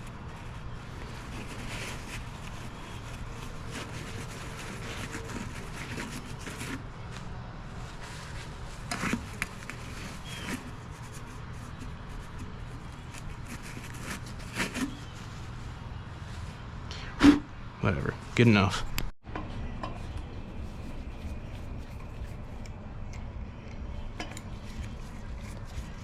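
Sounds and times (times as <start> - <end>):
scraping and handling sounds: 0.0 - 16.6, 24.0 - 26.0
steady low hum: 0.0 - 26.0.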